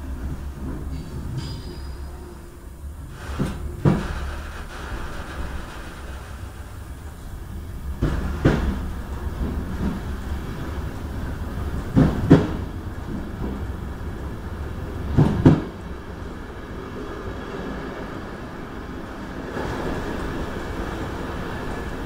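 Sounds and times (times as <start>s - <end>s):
train wheels rumbling: 0.0s - 22.0s
wheels clacking over rail joints: 3.1s - 15.9s.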